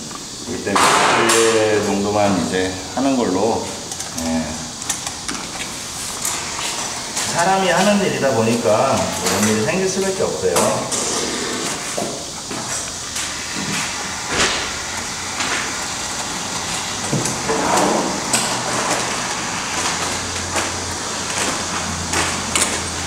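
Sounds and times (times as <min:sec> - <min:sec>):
spray foam gun hissing: 0:09.7 - 0:23.0.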